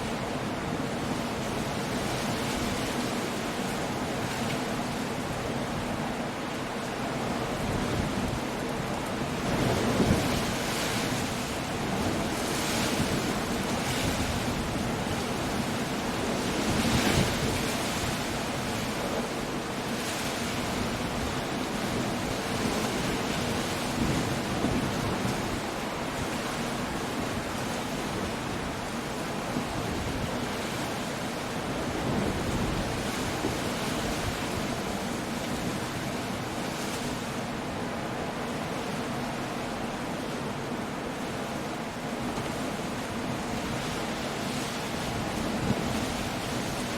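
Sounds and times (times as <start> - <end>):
rain: 0.0 - 46.9
wind: 0.0 - 46.9.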